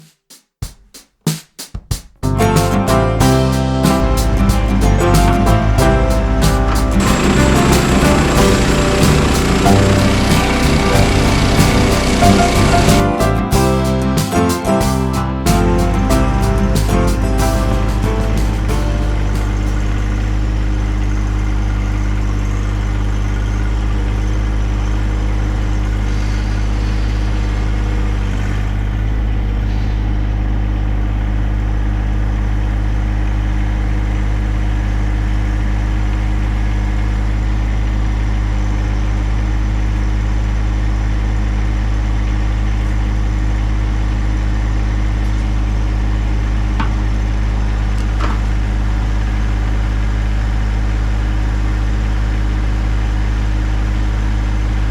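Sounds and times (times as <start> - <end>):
engine running steadily: 4.3 - 14.0.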